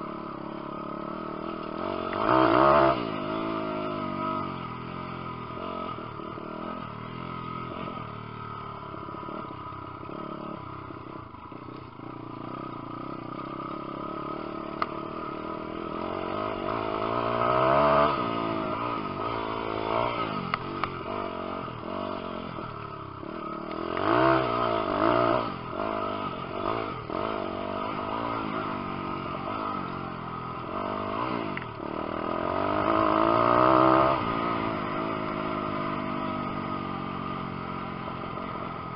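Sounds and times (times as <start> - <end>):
motorbike engine revving: 0.0 - 38.9.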